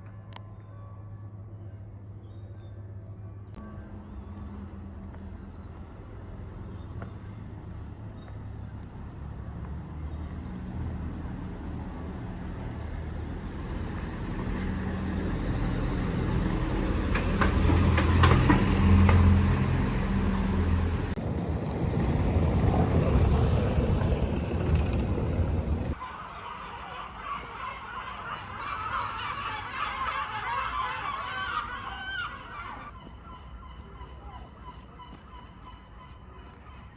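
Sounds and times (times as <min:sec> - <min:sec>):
vehicle engine droning: 0:03.6 - 0:26.1.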